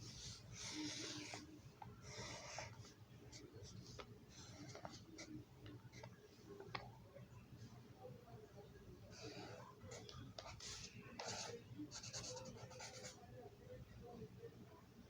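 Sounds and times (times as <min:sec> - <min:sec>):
marker scratching on paper: 0:00.0 - 0:05.3, 0:09.1 - 0:13.2.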